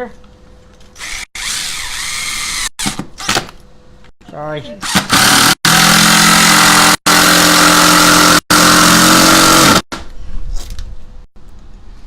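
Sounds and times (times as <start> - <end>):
power drill driving a screw: 1.0 - 3.4, 4.8 - 9.8.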